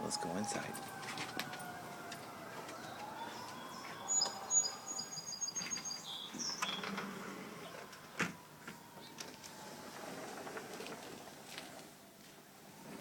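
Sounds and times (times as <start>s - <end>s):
small bird chirping: 2.8s - 7.0s.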